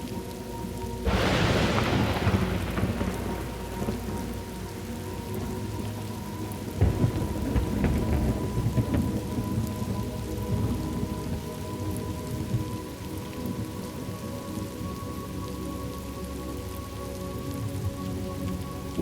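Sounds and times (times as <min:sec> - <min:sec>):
steady rain falling: 0:00.0 - 0:19.0
low thunder rumble: 0:01.0 - 0:15.0.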